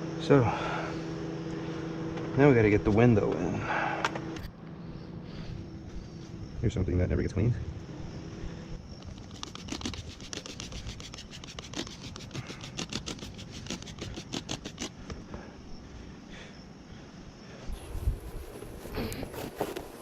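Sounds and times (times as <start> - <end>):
rapid rhythmic scrubbing strokes: 9.1 - 15.0.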